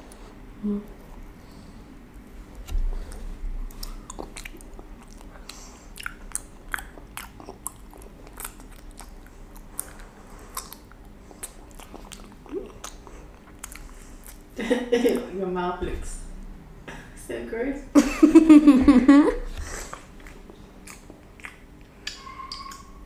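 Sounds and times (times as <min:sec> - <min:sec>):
child chewing with lip smacks: 0:00.0 - 0:15.2, 0:19.5 - 0:23.0.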